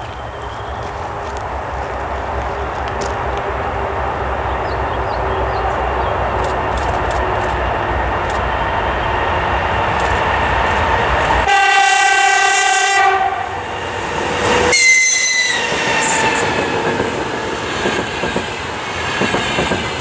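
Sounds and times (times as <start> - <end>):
train rumbling: 0.0 - 20.0
train horn blast: 11.4 - 13.6, 14.4 - 16.5
high-pitched train whistle: 11.5 - 13.6, 14.4 - 16.5
wheels clattering on rails: 15.6 - 20.0.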